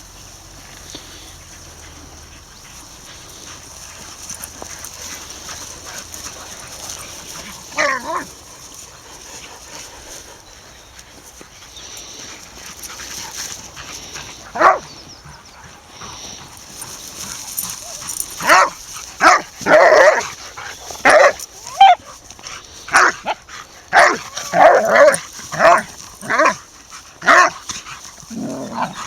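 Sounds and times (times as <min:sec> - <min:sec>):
dog barking: 0:14.6 - 0:14.9, 0:17.9 - 0:20.3, 0:21.0 - 0:22.1, 0:22.9 - 0:26.6, 0:27.2 - 0:27.6.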